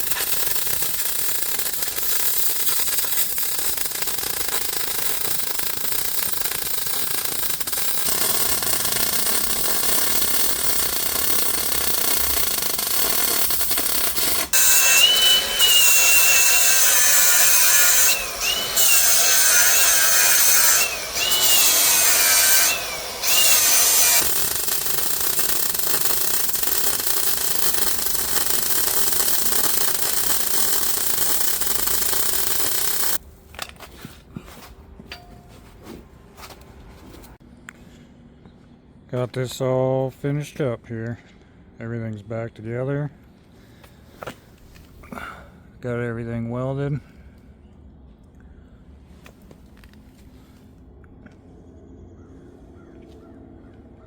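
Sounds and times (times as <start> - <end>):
power tool whining: 0.0 - 33.2.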